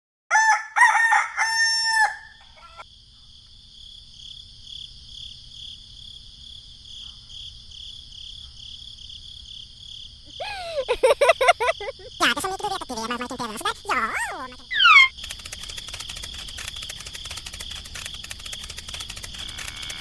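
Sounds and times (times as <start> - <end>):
rooster crowing: 0.3 - 2.8
insect chirring: 1.1 - 20.0.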